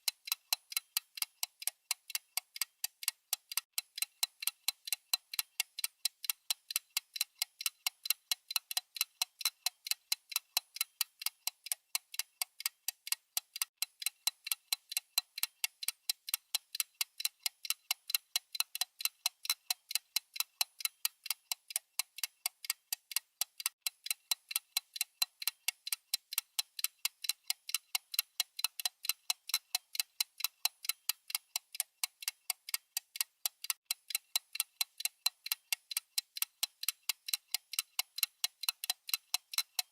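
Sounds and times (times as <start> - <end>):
timer ticking: 0.0 - 39.9.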